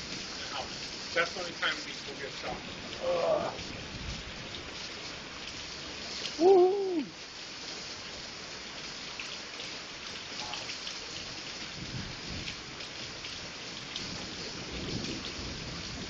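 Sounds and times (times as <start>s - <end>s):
steady rain falling: 0.0s - 16.0s
water drip ticks: 0.1s - 6.4s, 8.8s - 11.7s, 12.4s - 15.4s
low rumble of thunder: 3.4s - 4.7s, 11.6s - 12.8s, 14.0s - 16.0s.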